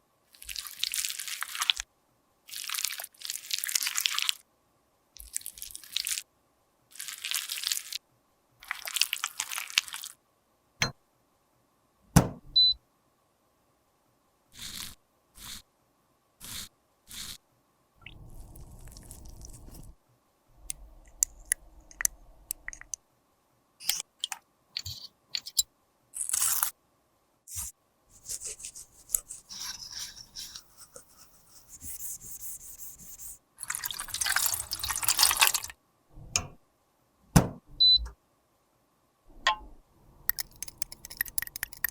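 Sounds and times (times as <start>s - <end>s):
powder scraping and crackling: 18.2s - 20.0s.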